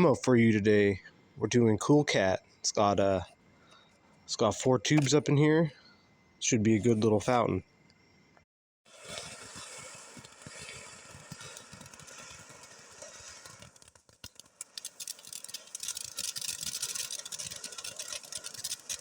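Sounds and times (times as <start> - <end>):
firework crackling pops: 8.9 - 19.0
firework fountain hissing: 8.9 - 19.0.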